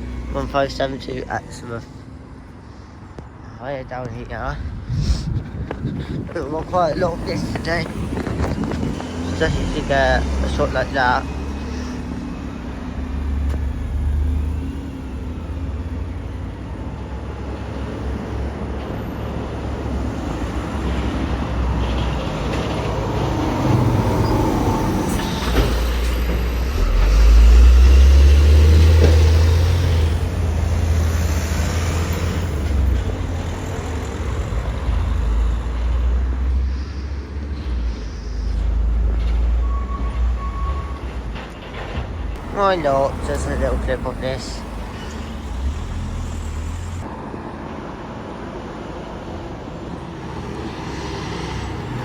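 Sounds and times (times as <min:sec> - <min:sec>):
road traffic with buses passing: 0:00.0 - 0:52.0.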